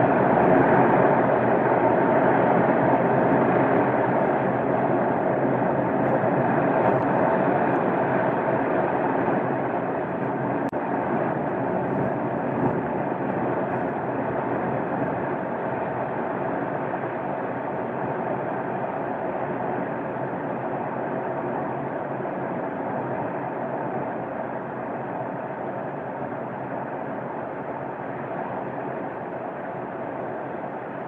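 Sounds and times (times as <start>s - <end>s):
avalanche rushing rumble: 0.0s - 15.8s.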